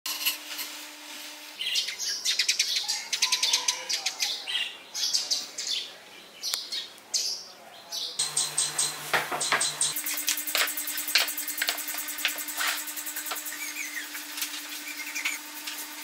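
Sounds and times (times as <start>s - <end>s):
small birds chirping and trilling: 1.6s - 10.0s, 13.2s - 15.5s.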